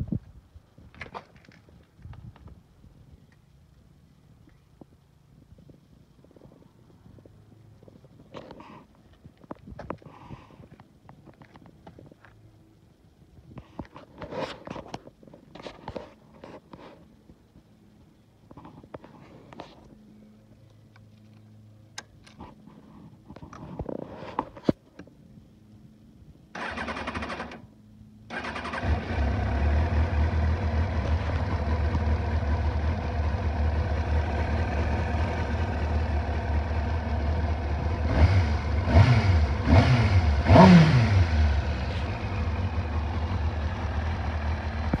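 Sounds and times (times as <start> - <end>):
motorcycle engine idling: 28.3 - 40.6, 41.2 - 45.0.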